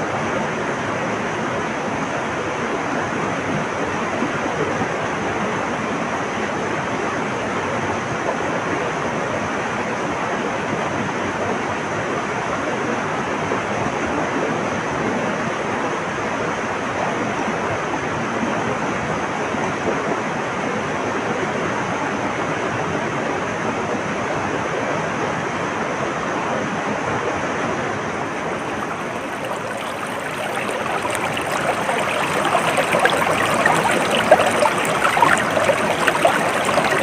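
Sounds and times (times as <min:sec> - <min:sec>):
flowing water rushing: 0:28.2 - 0:37.0.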